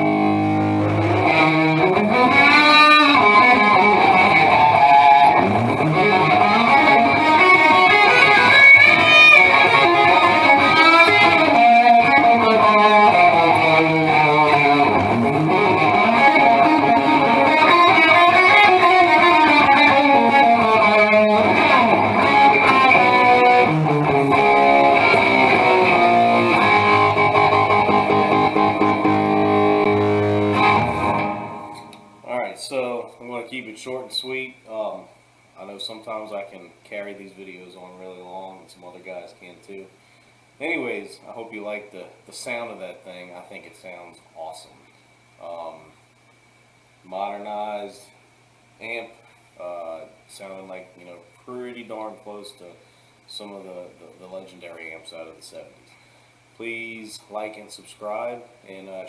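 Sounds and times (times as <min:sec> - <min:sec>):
electric guitar lead with bends: 0:00.0 - 0:32.2.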